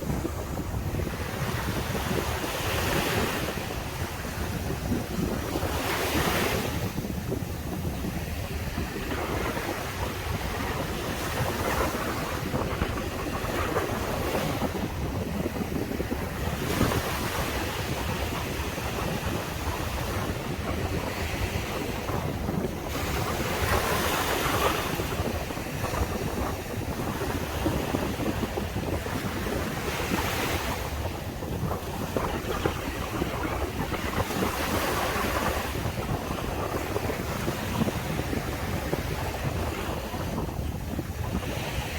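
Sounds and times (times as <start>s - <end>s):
surf washing onto beach: 0.0s - 41.9s
wind buffeting microphone: 0.0s - 41.9s.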